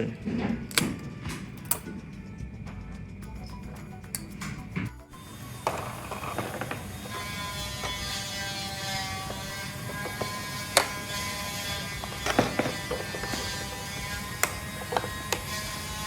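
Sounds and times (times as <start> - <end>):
sharp clicks: 0.0 - 7.0
small electric motors whirring: 5.2 - 16.0.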